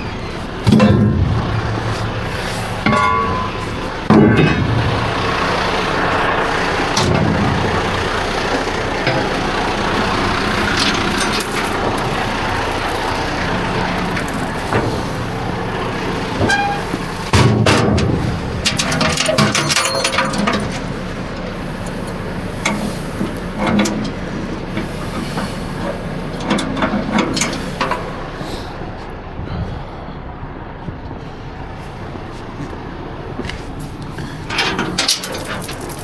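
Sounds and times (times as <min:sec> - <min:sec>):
diesel truck engine running: 0:00.0 - 0:36.0
metal knocks and clinks: 0:02.8 - 0:04.7, 0:10.7 - 0:20.8, 0:34.5 - 0:36.0.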